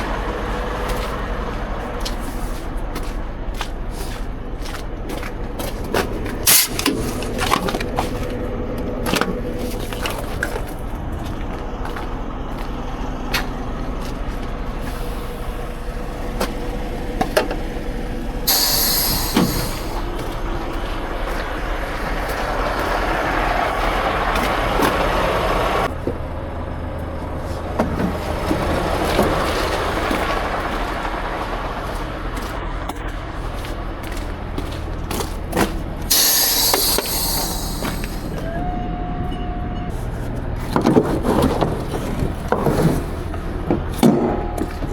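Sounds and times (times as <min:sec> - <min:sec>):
truck engine low rumble: 0:00.0 - 0:44.9
sharp hiss of released air: 0:18.5 - 0:20.1, 0:36.1 - 0:38.4.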